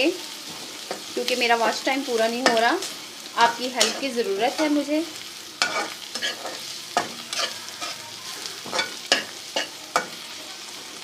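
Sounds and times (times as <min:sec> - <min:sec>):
masala sizzling in a pan: 0:00.0 - 0:11.0
spoon scraping and knocking pan: 0:03.5 - 0:04.8, 0:05.6 - 0:10.2.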